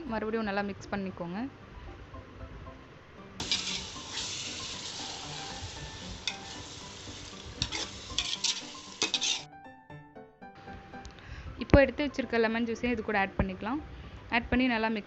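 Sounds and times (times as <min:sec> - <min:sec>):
food sizzling in a pan: 0:03.4 - 0:09.5
spoon scraping a pan: 0:03.4 - 0:09.5.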